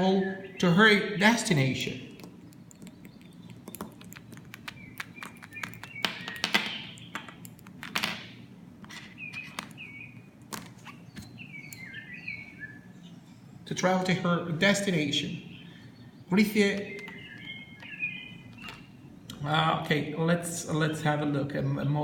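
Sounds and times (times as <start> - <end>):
small bird chirping: 1.8 - 7.8, 8.9 - 13.5, 15.4 - 19.3
sharp clicks: 2.1 - 7.9.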